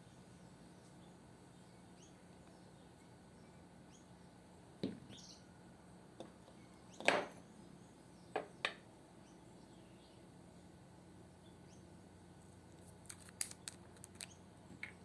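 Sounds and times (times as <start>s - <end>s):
faint bird chirps: 0.0s - 4.3s, 5.0s - 5.6s, 6.5s - 10.3s.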